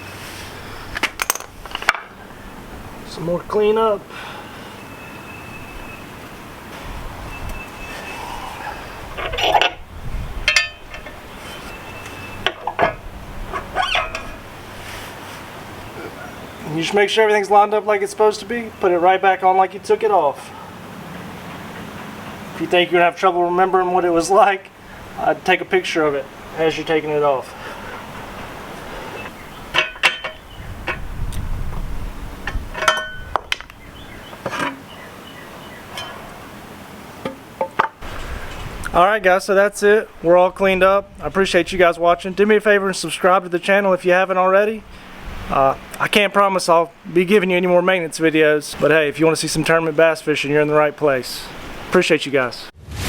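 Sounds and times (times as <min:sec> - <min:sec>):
metal tools clinking: 0:01.0 - 0:02.2, 0:09.2 - 0:09.8, 0:10.4 - 0:14.5, 0:29.2 - 0:31.0, 0:32.5 - 0:33.4, 0:34.4 - 0:34.8, 0:35.9 - 0:36.3.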